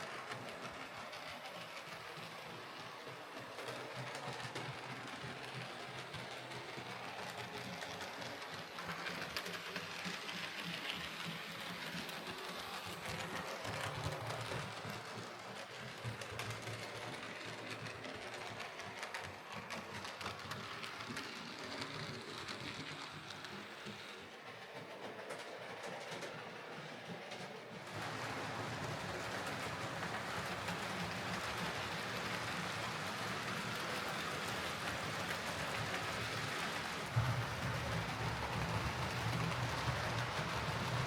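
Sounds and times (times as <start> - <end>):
wheels clicking on rail: 0.0 - 41.0.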